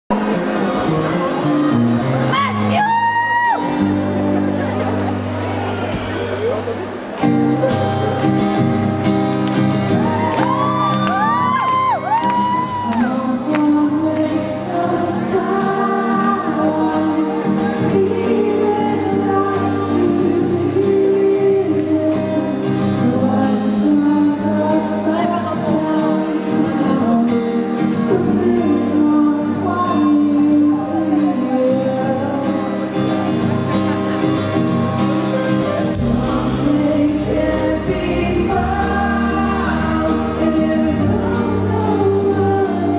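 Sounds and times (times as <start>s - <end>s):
crowd: 0.0s - 42.9s
live rock band: 0.1s - 42.9s
high whoops: 2.3s - 3.8s, 9.9s - 13.2s
man singing: 12.4s - 33.3s, 35.6s - 42.9s.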